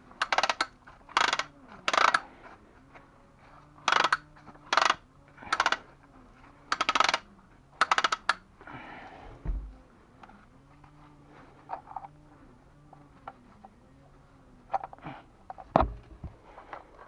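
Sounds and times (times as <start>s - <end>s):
rustle: 0.0s - 7.8s
rapid clicking bursts: 6.7s - 7.2s, 7.8s - 8.4s
dull low thump: 9.3s - 9.8s.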